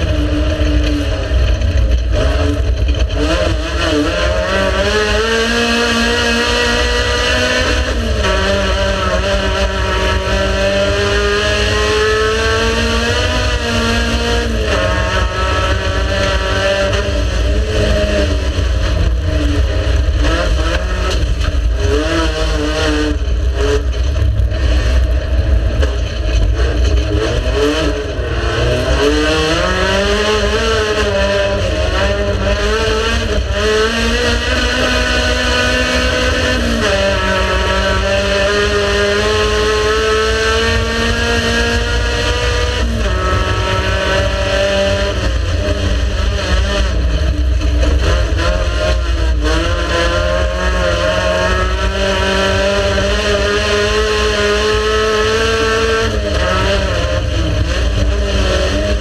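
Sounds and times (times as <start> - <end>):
race car engine revving: 0.0 - 59.0
heavy low rumble: 14.2 - 34.4.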